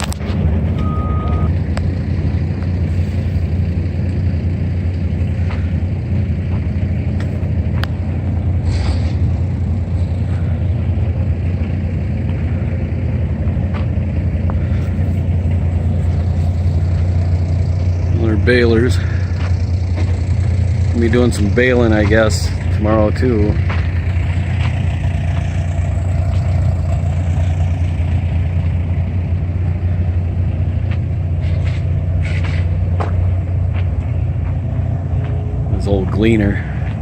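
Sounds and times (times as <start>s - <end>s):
engine running: 0.0s - 37.0s
short high beep: 0.8s - 1.5s.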